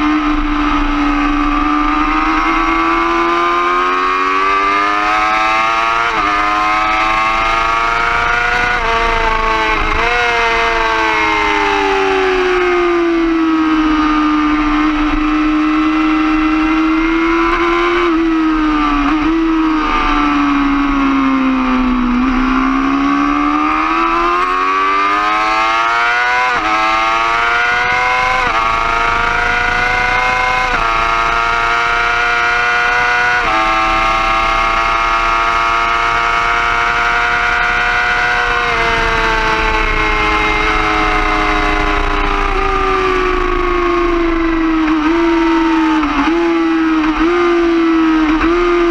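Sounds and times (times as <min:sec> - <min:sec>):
motorcycle engine upshifting: 0:00.0 - 0:48.9.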